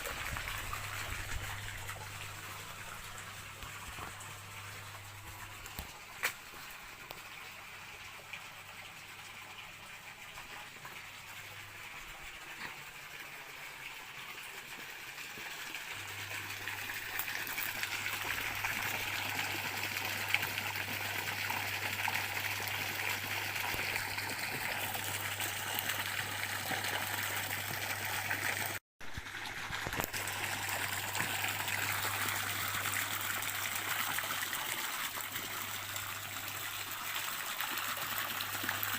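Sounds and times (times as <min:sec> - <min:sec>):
water flowing in a stream: 0:00.0 - 0:38.9.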